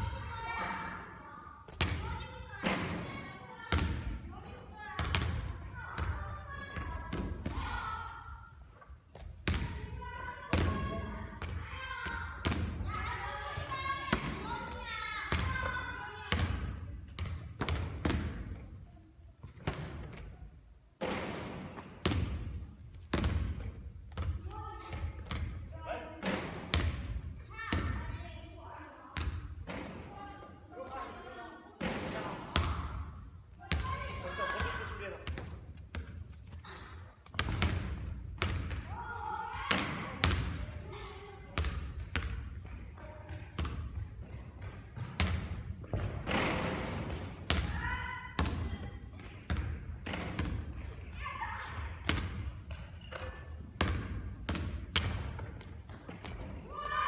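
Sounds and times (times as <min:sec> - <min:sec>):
basketball bouncing on a court: 0:01.7 - 0:03.0, 0:03.7 - 0:04.2, 0:05.0 - 0:07.7, 0:09.1 - 0:12.8, 0:15.3 - 0:18.6, 0:21.1 - 0:25.6, 0:26.2 - 0:28.2, 0:37.2 - 0:38.9, 0:39.6 - 0:51.1, 0:51.9 - 0:56.6.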